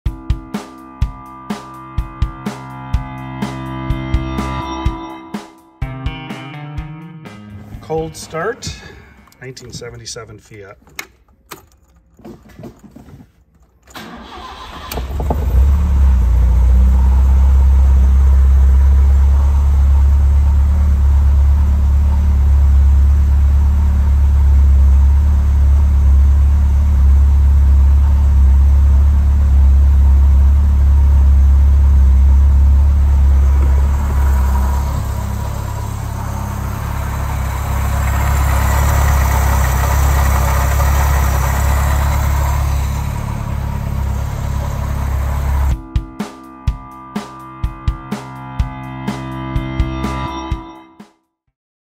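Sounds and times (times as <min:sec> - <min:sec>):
car engine starting and idling: 0:07.6 - 0:12.9, 0:13.5 - 0:45.8
high-pitched mechanical engine noise: 0:30.6 - 0:45.7.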